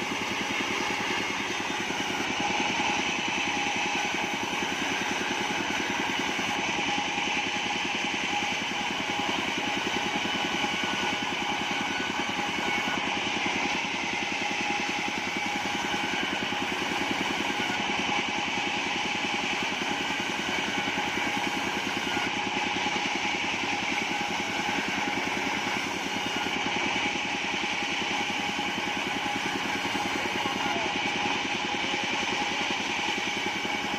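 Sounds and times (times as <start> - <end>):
sawmill motor beat: 0.0 - 33.9
steady whining tones: 0.0 - 33.9.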